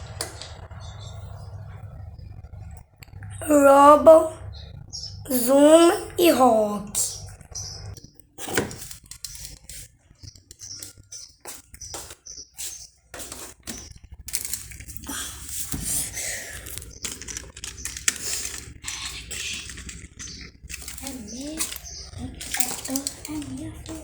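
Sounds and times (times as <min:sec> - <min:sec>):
plastic toys clattering: 0:08.3 - 0:09.9, 0:13.2 - 0:24.0.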